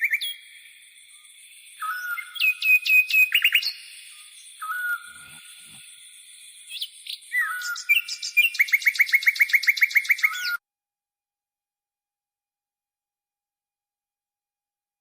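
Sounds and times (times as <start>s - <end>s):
songbirds chirping and whistling: 0.0s - 10.6s.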